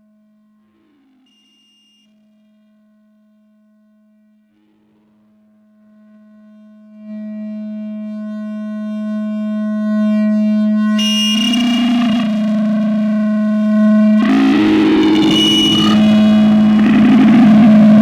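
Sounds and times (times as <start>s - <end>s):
feedback drone with overtones: 10.1s - 18.0s
harsh distorted noise: 11.0s - 13.1s, 14.0s - 18.0s.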